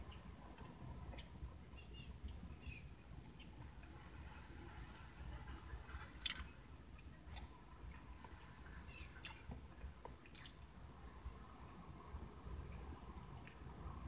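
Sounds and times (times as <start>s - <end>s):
man chewing: 6.2s - 6.5s, 10.2s - 10.7s
mouth smacks: 10.3s - 10.6s.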